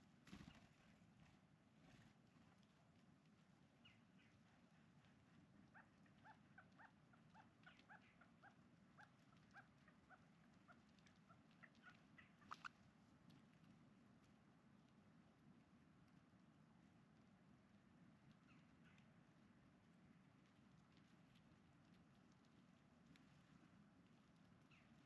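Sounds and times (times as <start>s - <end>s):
birds chirping faintly: 5.7s - 12.8s.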